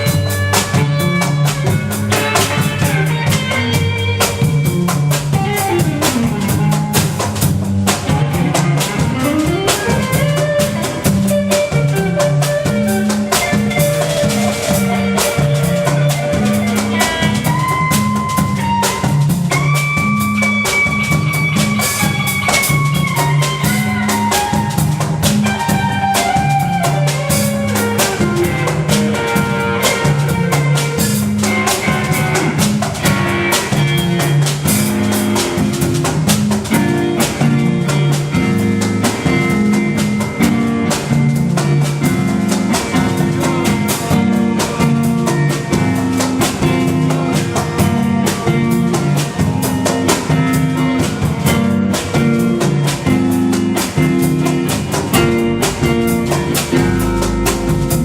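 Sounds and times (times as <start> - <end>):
drum kit beat: 0.0 - 58.0
instrumental band music: 0.0 - 58.0
repeating bass line: 54.0 - 58.0.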